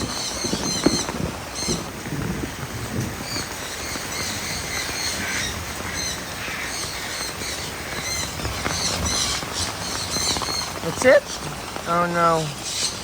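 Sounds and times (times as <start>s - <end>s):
birds squawking and calling: 0.0s - 13.0s
rain hiss: 0.0s - 13.0s.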